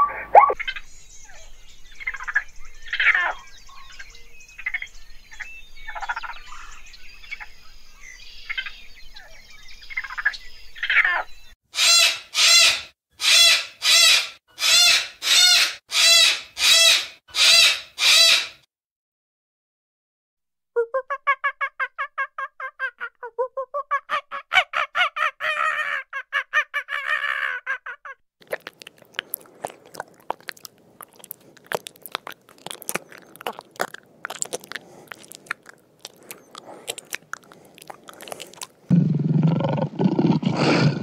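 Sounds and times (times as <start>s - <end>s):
cockatoo screeching: 11.8s - 18.6s, 24.1s - 28.2s.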